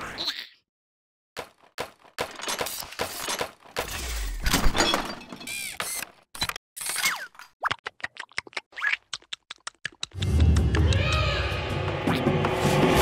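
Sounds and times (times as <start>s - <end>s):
cartoon knocks and crashes: 1.4s - 5.5s.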